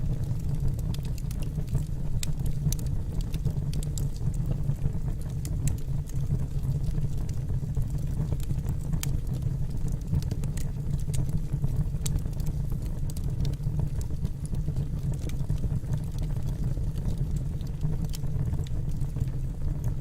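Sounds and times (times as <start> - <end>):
burning wood crackling and popping: 0.0 - 20.0
fire rumbling: 0.0 - 20.0.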